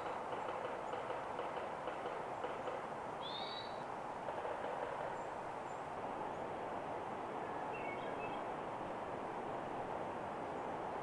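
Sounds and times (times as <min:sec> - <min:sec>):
wild birds chirping: 0:00.0 - 0:08.7
steady rushing background noise: 0:03.9 - 0:11.0.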